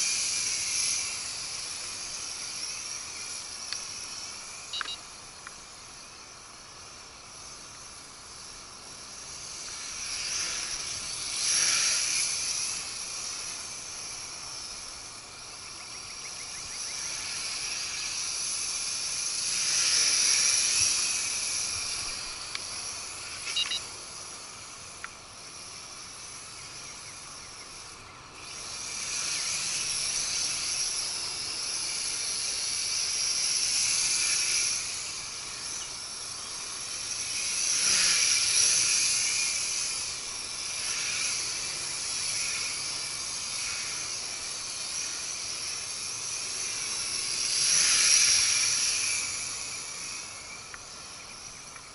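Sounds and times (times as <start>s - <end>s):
quadcopter propellers whining: 0.0s - 51.9s
short clicks: 4.7s - 5.6s.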